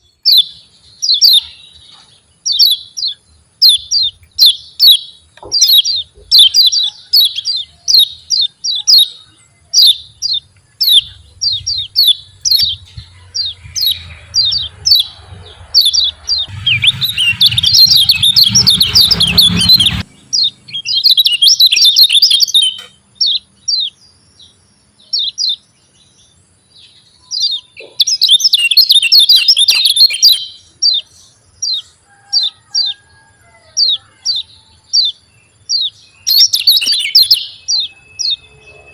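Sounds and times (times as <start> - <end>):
bird chirping: 0.0 - 38.9
bird rapid chattering: 9.8 - 22.8.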